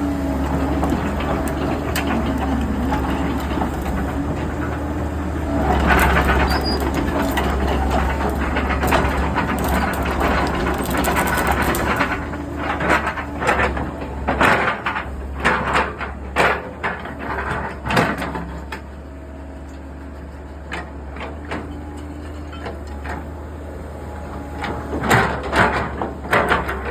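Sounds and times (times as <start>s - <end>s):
low engine hum: 0.0s - 26.9s
machinery knocks and clanks: 0.1s - 23.6s, 24.4s - 26.9s.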